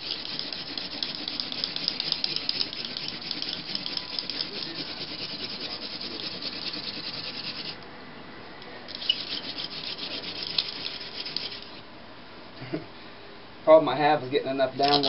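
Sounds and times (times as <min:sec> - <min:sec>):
spindle grinding rasp: 0:00.0 - 0:07.8, 0:08.9 - 0:11.8.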